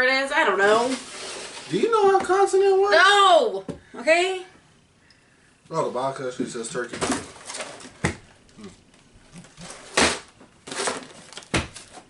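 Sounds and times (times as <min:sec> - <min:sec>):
cardboard box crinkling and scraping: 0:09.4 - 0:12.0.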